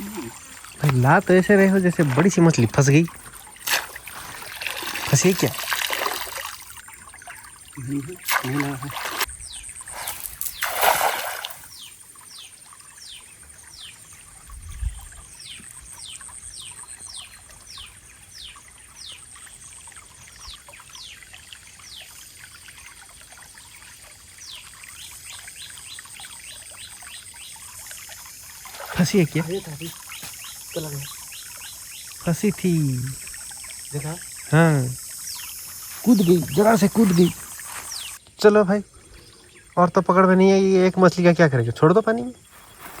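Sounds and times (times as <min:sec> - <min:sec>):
high insect drone: 0:00.0 - 0:07.0, 0:27.4 - 0:38.2
loud water splash: 0:03.6 - 0:06.8, 0:08.2 - 0:11.8.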